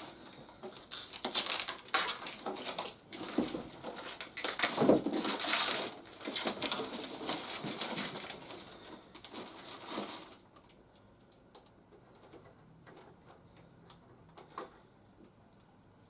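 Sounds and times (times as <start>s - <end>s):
packaging crinkling and rustling: 0.0s - 12.4s.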